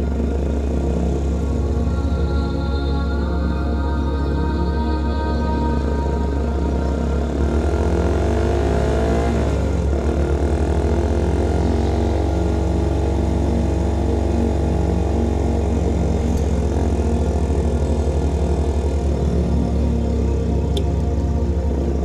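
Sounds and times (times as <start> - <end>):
motorcycle engine revving: 7.1 - 22.0.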